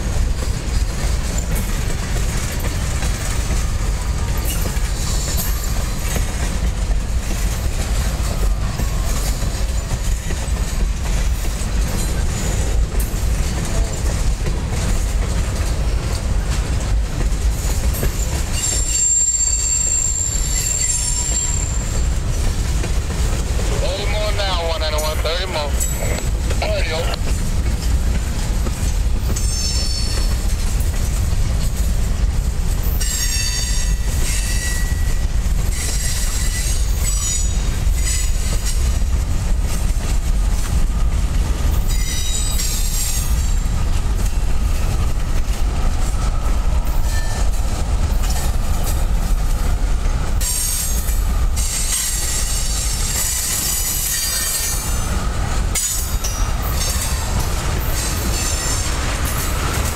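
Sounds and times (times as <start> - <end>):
train wheels rumbling on rail: 0.0 - 59.9
high-pitched wheel squeals: 18.6 - 22.0.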